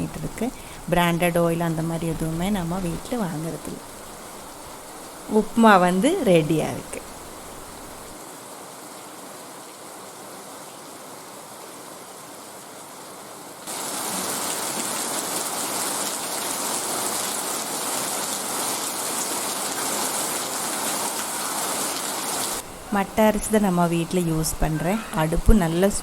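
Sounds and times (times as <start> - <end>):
heavy rain falling: 0.0 - 8.2, 13.7 - 26.0.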